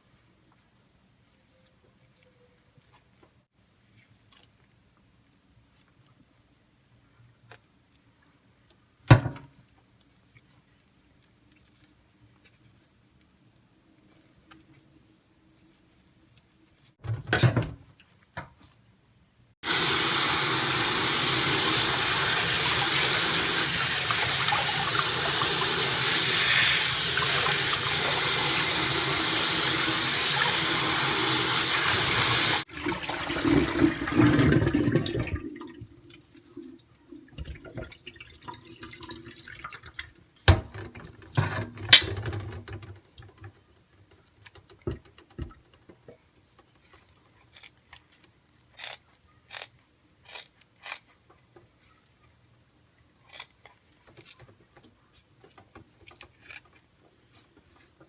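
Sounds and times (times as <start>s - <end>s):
tap running into sink: 19.7s - 35.4s.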